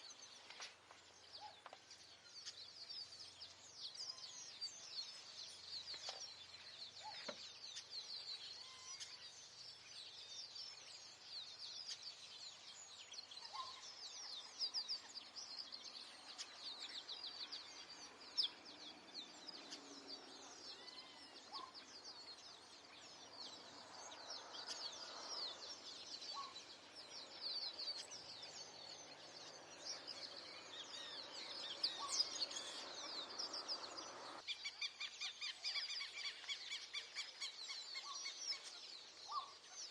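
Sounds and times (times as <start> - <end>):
small birds chirping: 0.0 - 39.9
lower bird calls: 19.2 - 39.6.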